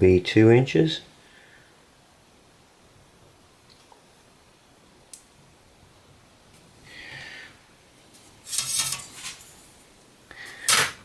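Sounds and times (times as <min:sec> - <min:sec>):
rubbing scrape: 0:08.4 - 0:09.6
marker scratching on metal: 0:08.5 - 0:09.5.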